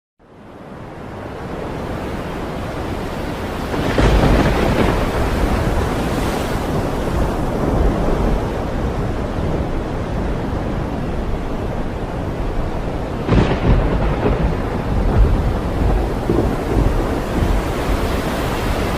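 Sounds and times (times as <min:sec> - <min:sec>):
wind: 0:00.2 - 0:18.9
waves surging and breaking: 0:00.3 - 0:18.9.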